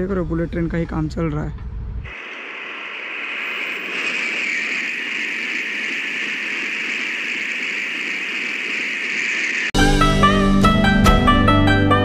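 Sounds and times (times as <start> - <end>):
high-speed train passing: 2.1 - 9.8.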